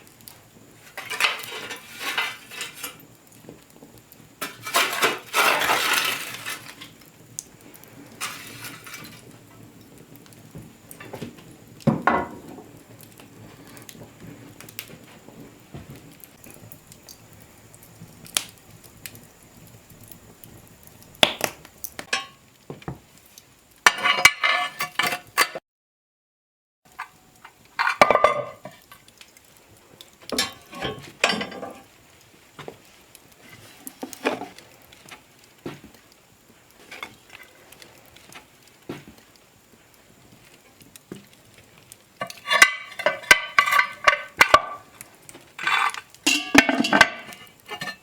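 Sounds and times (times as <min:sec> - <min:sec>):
dishes and utensils clattering: 0:00.8 - 0:03.0, 0:04.4 - 0:06.9, 0:08.2 - 0:09.2, 0:23.9 - 0:25.6, 0:27.8 - 0:28.8, 0:30.4 - 0:31.9, 0:42.2 - 0:44.9, 0:45.6 - 0:48.0.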